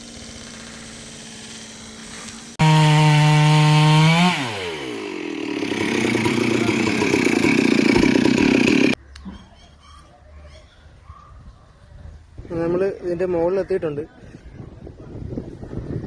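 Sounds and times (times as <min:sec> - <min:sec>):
chainsaw revving and cutting wood: 0:00.0 - 0:09.0.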